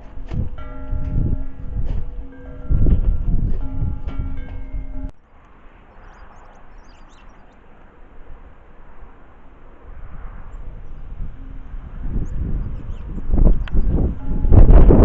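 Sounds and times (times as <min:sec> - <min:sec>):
sustained low tone: 0:00.0 - 0:05.3, 0:09.9 - 0:15.0
small birds chirping: 0:04.7 - 0:07.8, 0:12.1 - 0:14.2
outdoor background hiss: 0:05.1 - 0:14.7.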